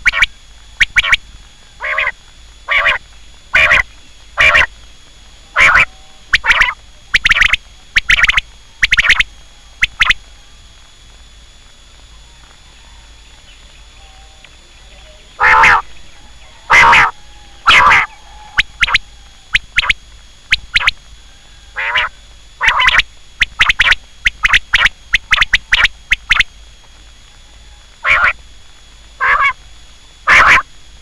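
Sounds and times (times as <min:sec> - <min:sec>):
quail calling: 0:00.0 - 0:01.2, 0:01.8 - 0:04.7, 0:05.5 - 0:10.3, 0:15.2 - 0:21.0, 0:21.7 - 0:26.5, 0:27.6 - 0:28.4, 0:29.2 - 0:29.6, 0:30.3 - 0:30.7.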